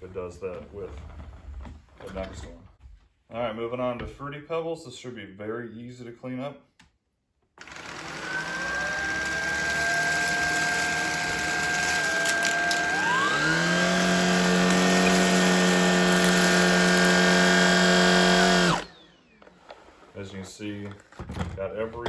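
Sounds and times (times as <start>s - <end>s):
vacuum cleaner motor whine: 7.6s - 20.1s.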